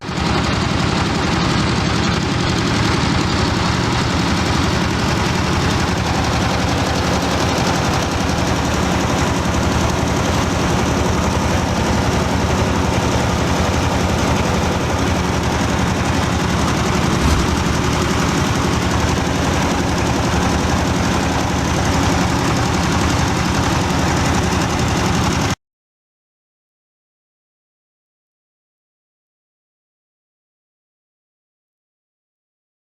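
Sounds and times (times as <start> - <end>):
motor drone: 3.9 - 22.6
grinding mill rattling: 4.0 - 11.4.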